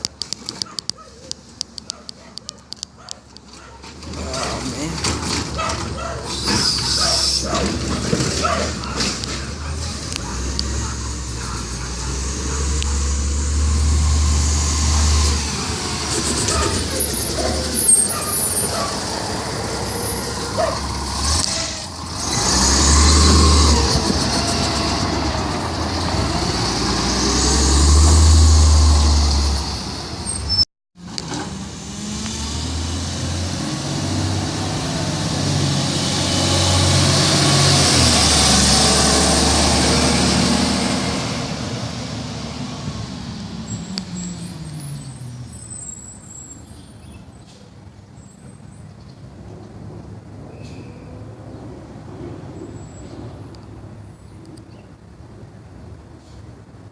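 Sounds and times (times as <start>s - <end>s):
garbage truck diesel engine: 3.2s - 47.9s.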